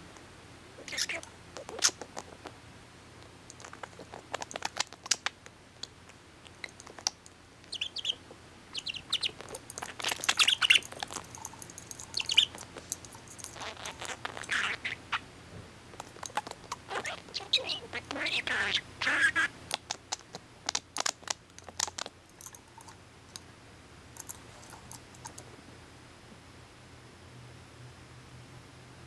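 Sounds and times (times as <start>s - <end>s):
budgerigar chattering: 0.8s - 2.6s, 6.5s - 15.2s, 16.2s - 20.4s.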